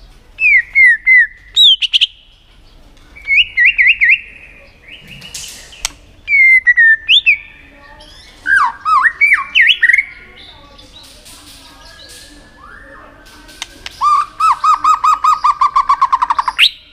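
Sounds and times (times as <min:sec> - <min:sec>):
bird singing whistled phrases: 0:00.4 - 0:02.2, 0:03.2 - 0:05.2, 0:05.8 - 0:10.2, 0:11.8 - 0:13.2, 0:14.0 - 0:16.9
sharp click: 0:05.2 - 0:06.0, 0:13.3 - 0:14.0.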